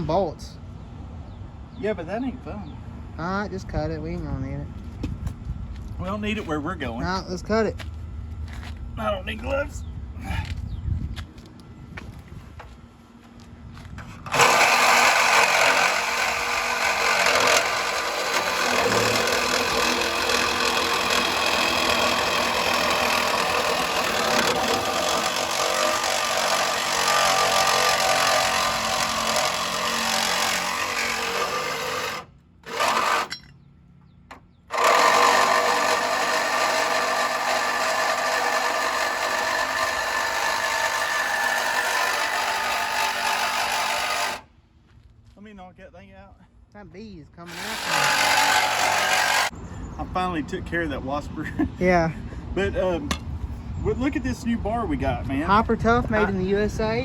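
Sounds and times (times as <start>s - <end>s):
power saw cutting metal: 14.2s - 33.5s, 34.7s - 44.5s, 47.5s - 49.5s.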